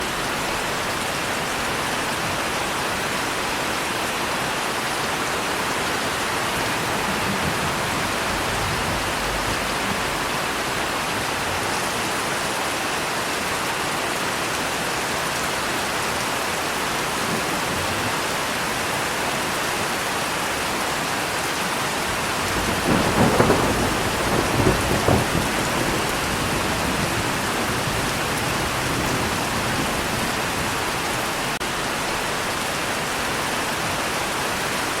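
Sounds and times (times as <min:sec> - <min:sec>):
steady rain: 0:00.0 - 0:35.0
thunder rumbling: 0:06.1 - 0:12.1, 0:22.4 - 0:31.3.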